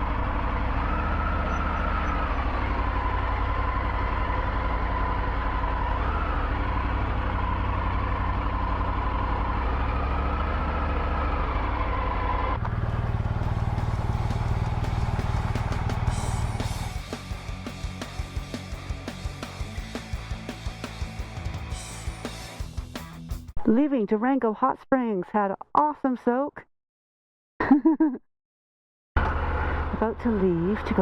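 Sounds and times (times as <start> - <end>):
motorcycle engine running: 0.0 - 23.4, 29.2 - 31.0.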